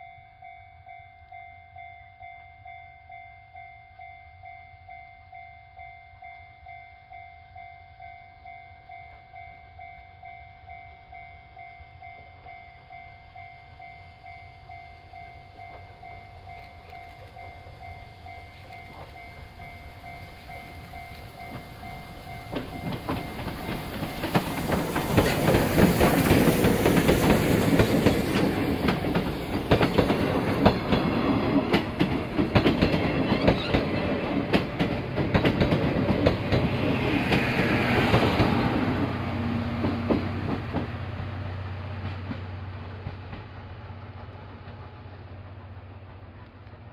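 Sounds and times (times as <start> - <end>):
passenger train rumbling past: 7.6 - 46.9
wheels clacking over rail joints: 15.6 - 43.7.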